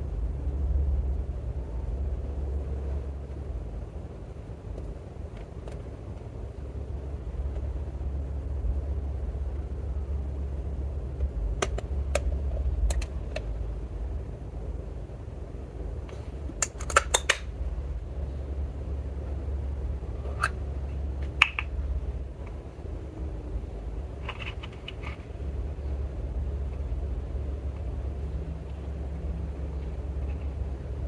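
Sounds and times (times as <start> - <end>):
low rumble: 0.0 - 4.4.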